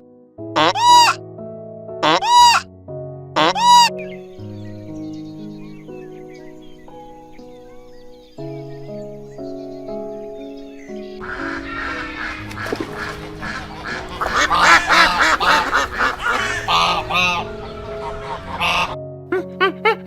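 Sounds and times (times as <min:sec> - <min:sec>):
background music with held notes: 0:00.0 - 0:20.0
waterfowl honking: 0:00.6 - 0:01.2, 0:02.0 - 0:02.6, 0:03.4 - 0:04.1, 0:11.2 - 0:19.0.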